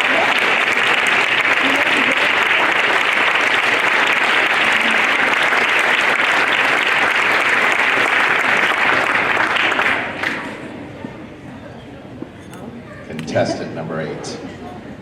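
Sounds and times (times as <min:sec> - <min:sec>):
children applauding: 0:00.0 - 0:10.6.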